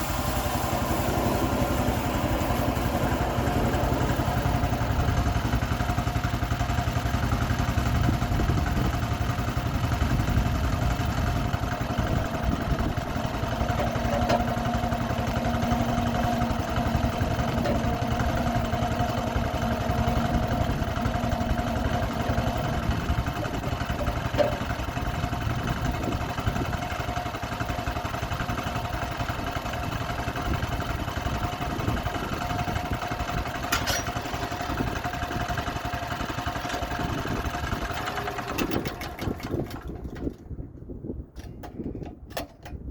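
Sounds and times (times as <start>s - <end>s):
low hum: 0.0s - 7.2s, 11.0s - 27.2s
sawmill engine running: 0.0s - 40.8s.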